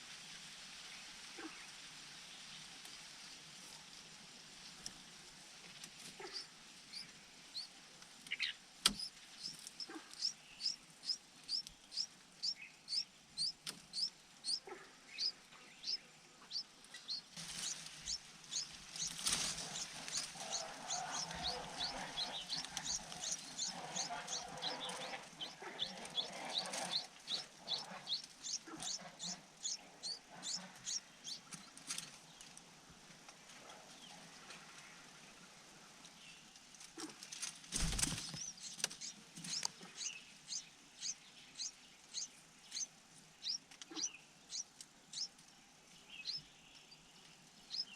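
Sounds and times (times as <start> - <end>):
bird chirping: 8.3 - 31.7, 37.8 - 45.4, 46.0 - 47.9.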